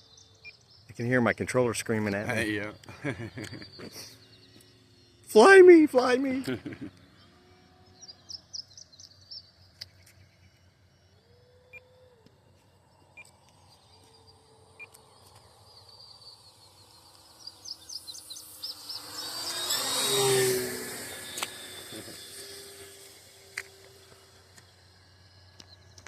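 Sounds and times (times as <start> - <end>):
birds chirping: 0.0 - 26.0
model plane motors droning: 0.0 - 26.0.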